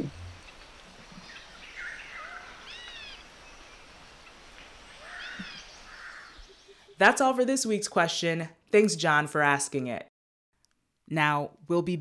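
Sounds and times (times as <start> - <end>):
steady faint hiss: 0.0 - 7.0
birds calling: 0.0 - 7.2.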